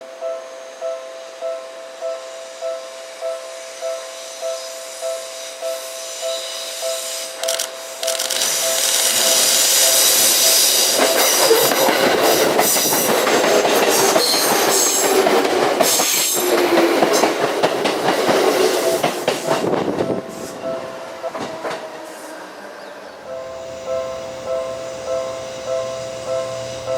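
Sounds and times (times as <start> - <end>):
train wheels rumbling and clicking: 7.4 - 20.5.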